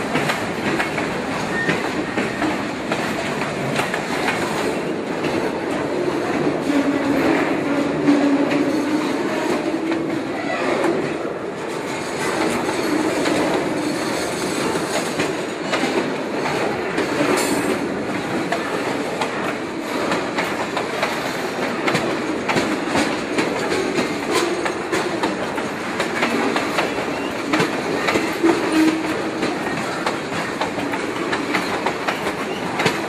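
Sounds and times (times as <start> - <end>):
freight train rumble: 0.0 - 33.0
wheels clattering over rail joints: 0.0 - 33.0
wheel squeal: 1.4 - 2.4.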